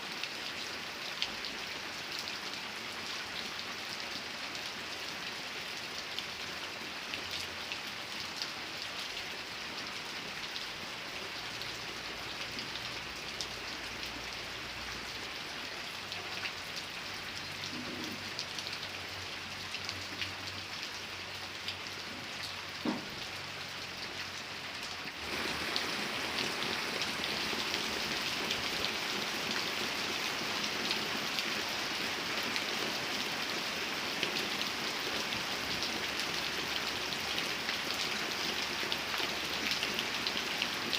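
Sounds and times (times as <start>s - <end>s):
rain falling: 0.0s - 40.9s
raindrops ticking on a surface: 0.1s - 40.9s.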